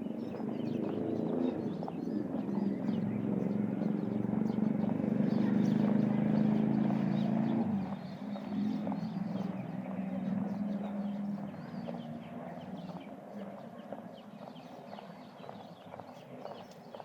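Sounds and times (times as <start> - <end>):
low engine hum: 0.0 - 14.6
small birds chirping: 0.0 - 17.0.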